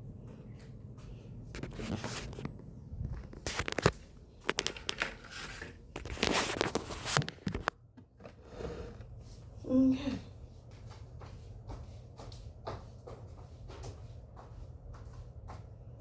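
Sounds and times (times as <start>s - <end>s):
rustling and scraping on floor: 0.3s - 9.6s.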